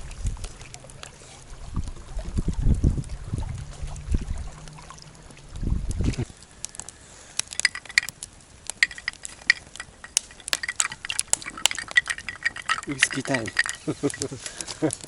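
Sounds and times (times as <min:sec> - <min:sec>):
low rumble of handling noise: 0:00.0 - 0:15.0
glassware clinking: 0:07.5 - 0:08.1, 0:08.8 - 0:14.4.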